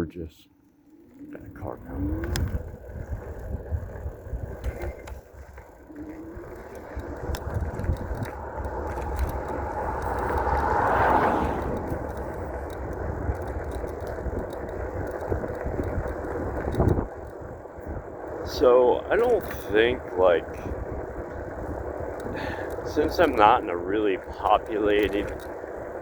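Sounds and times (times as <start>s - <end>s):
wind rumble on microphone: 1.4s - 26.0s
car driving past: 6.2s - 14.6s.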